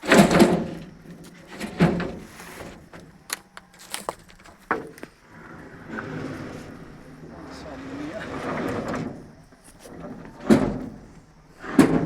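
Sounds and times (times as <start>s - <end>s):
irregular knocks and clatters: 0.0s - 7.0s.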